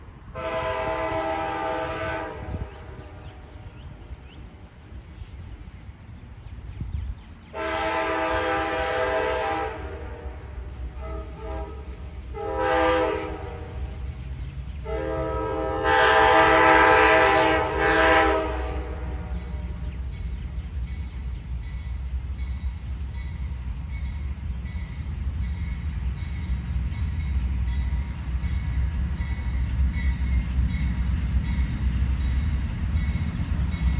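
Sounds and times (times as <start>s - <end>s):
train rumble: 0.0s - 33.9s
train air horn: 0.3s - 3.3s, 7.5s - 14.1s, 14.8s - 19.8s.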